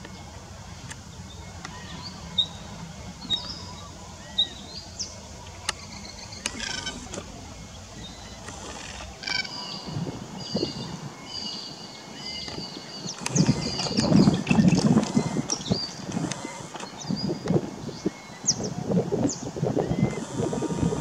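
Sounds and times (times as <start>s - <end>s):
birds calling: 0.0s - 21.0s
sharp clicks: 5.4s - 9.6s, 12.5s - 17.0s.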